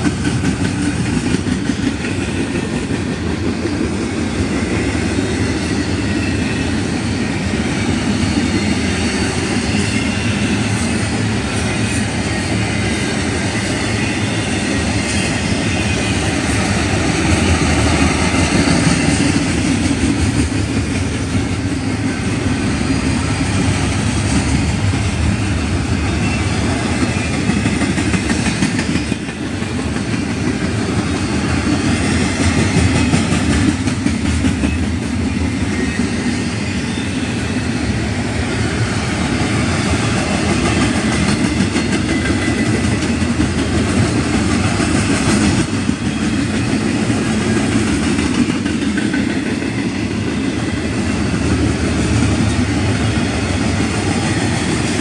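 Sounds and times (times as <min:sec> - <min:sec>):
train wheels rolling on rails: 0:00.0 - 0:55.0.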